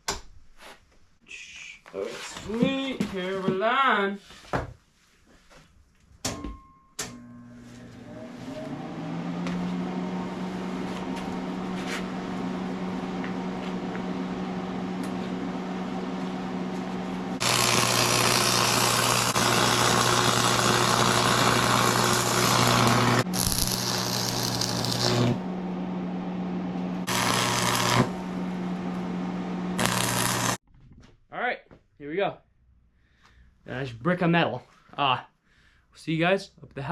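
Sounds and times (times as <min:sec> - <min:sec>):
welding machine humming: 0:10.8 - 0:30.6
crackling welding arc: 0:17.4 - 0:25.4, 0:27.1 - 0:28.2, 0:29.8 - 0:30.6.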